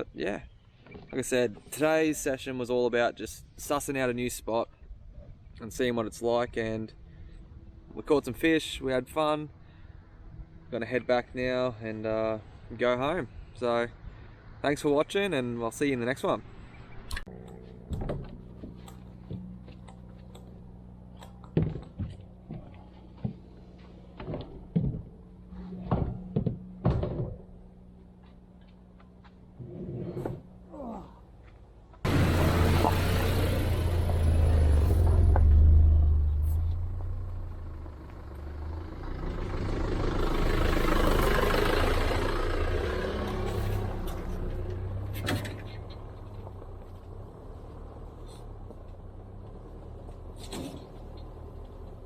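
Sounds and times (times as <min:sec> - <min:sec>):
road vehicle passing: 0:09.4 - 0:30.7, 0:32.0 - 0:52.0.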